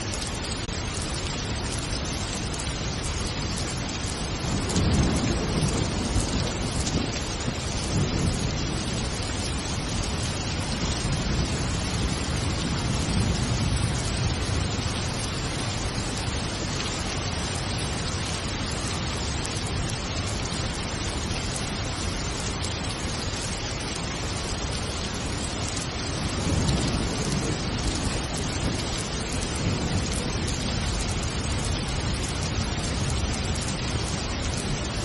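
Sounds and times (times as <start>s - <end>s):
steady rain: 0.0s - 35.0s.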